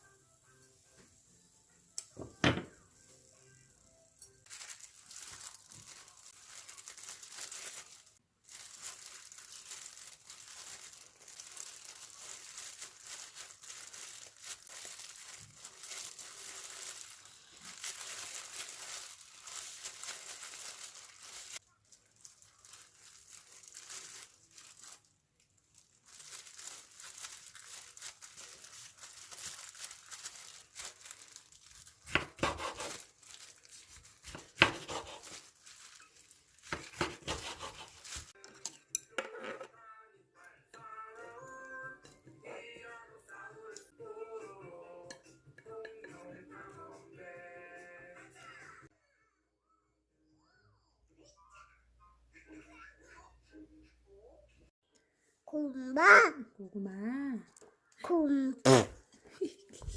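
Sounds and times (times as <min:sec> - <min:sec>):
packaging crinkling and rustling: 0:04.4 - 0:38.4.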